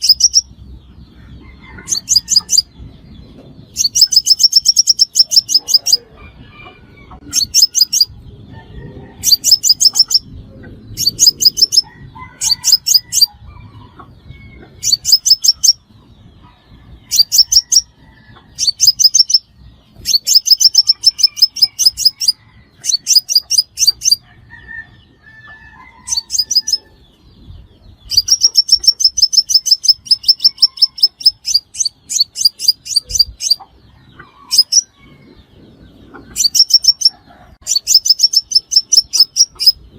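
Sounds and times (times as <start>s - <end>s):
bird twittering trills: 0.0s - 39.9s.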